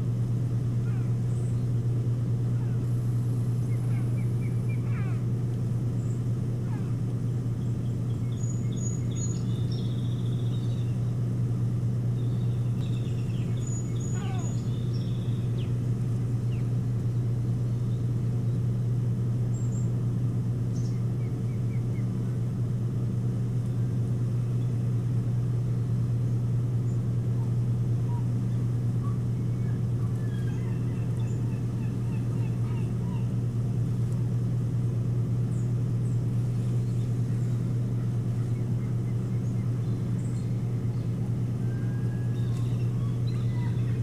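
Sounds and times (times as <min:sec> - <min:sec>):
steady low hum: 0:00.0 - 0:44.0
high thin bird calls: 0:12.2 - 0:15.8.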